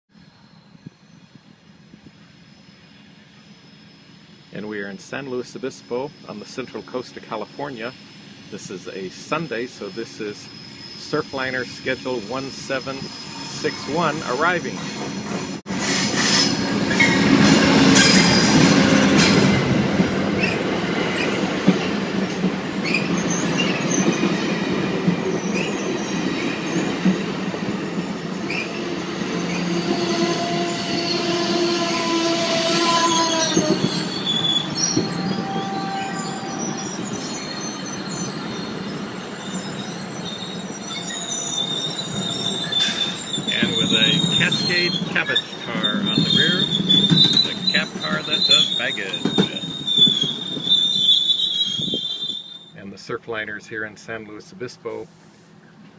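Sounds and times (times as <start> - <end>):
train wheels rumbling over rails: 0.8 - 52.2
metallic squeals: 5.9 - 21.9, 28.5 - 52.8.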